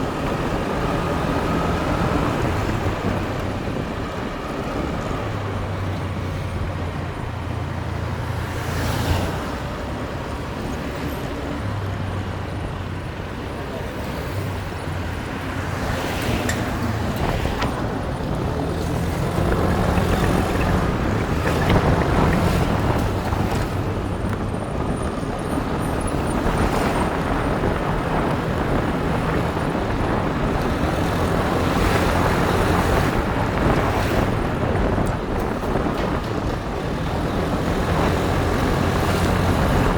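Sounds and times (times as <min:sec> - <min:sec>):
road noise: 0:00.0 - 0:39.9
wind noise: 0:00.0 - 0:39.9
motorbike engine running: 0:14.7 - 0:39.9.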